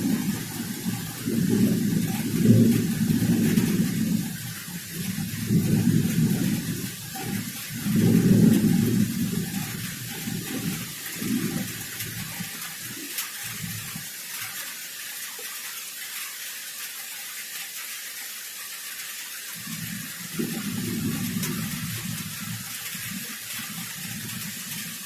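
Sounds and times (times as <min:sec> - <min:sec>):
thunder rumbling: 0:00.0 - 0:14.1, 0:19.6 - 0:25.0
heavy rain: 0:00.0 - 0:25.0.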